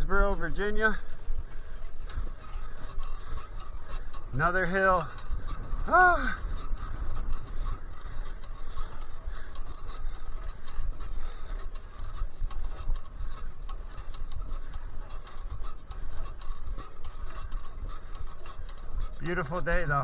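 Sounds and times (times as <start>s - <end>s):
bicycle ride hum: 0.0s - 20.0s
light irregular ticks: 0.0s - 20.0s
wind rumbling on microphone: 0.0s - 20.0s.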